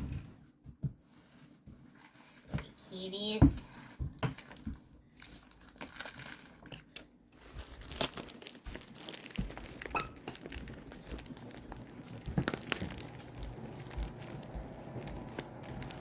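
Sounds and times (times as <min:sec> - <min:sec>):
packaging crinkling: 0:04.4 - 0:16.0
packaging tearing: 0:05.2 - 0:16.0.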